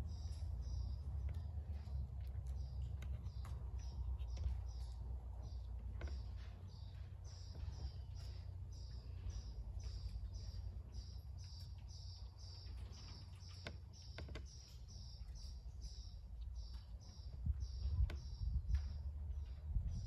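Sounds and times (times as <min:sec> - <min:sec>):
small bird chirping: 0:00.0 - 0:20.0
low rumble: 0:15.0 - 0:20.0.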